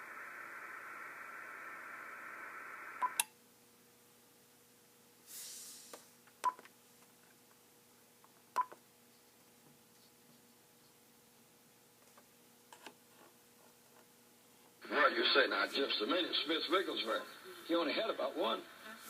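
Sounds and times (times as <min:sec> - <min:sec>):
radio held tones signal: 0:00.0 - 0:03.2
short hiss: 0:05.2 - 0:06.2.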